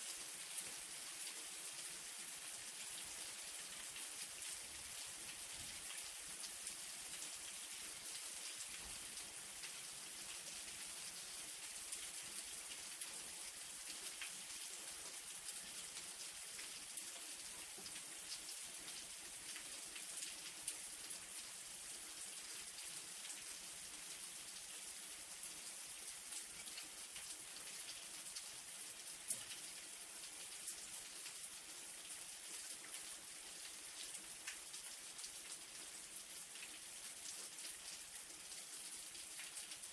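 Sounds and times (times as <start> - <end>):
light rain pattering: 0.0 - 39.9.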